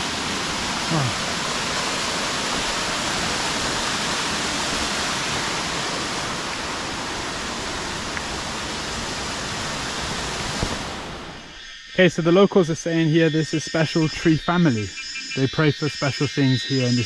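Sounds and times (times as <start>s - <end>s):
flowing water rushing: 0.0s - 11.5s.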